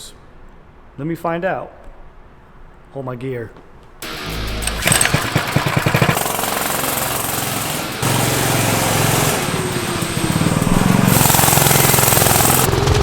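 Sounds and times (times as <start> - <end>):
mini bike engine running hard: 4.0 - 13.0.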